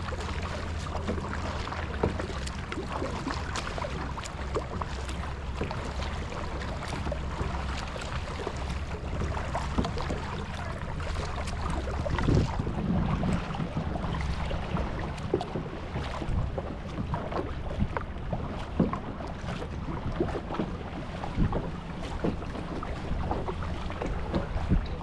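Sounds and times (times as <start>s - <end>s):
water splashing and dripping: 0.0s - 12.8s
wind on microphone: 8.2s - 25.0s.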